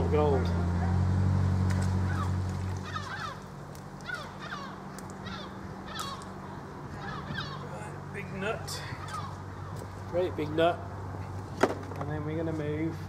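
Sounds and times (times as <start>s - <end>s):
low engine hum: 0.0s - 13.0s
birds calling: 1.7s - 11.6s.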